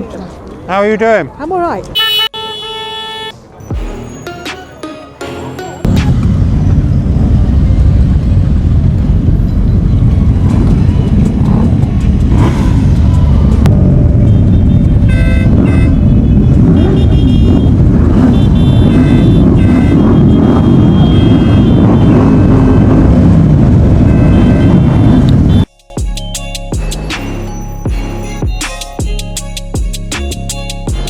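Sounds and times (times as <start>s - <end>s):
motorcycle engines rumbling: 5.8s - 28.4s
thin high tones: 25.7s - 31.0s.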